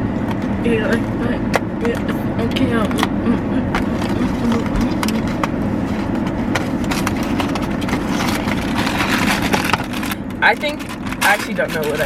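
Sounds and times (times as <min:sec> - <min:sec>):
car cabin rumble: 0:00.0 - 0:12.0
packaging clicking and crinkling: 0:06.6 - 0:12.0.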